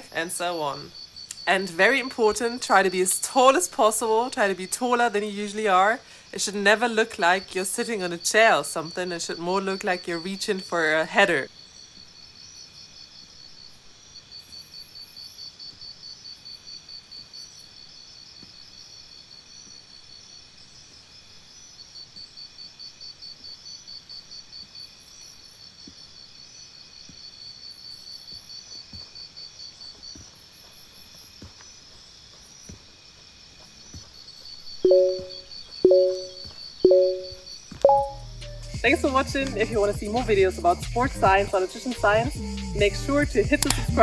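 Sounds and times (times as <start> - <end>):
crickets chirping: 0.0 - 25.7
short low two-tone beeps: 34.8 - 38.4.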